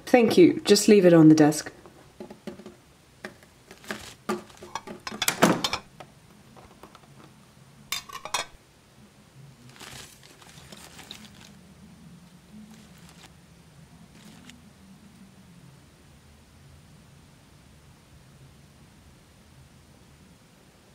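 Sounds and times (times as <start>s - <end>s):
paper rustling: 3.7s - 5.0s, 9.7s - 11.6s, 12.6s - 13.3s, 14.1s - 14.6s.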